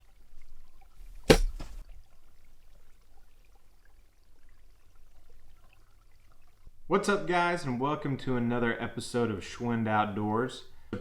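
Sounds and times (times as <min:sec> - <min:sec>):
sharp hits: 0:01.2 - 0:01.8.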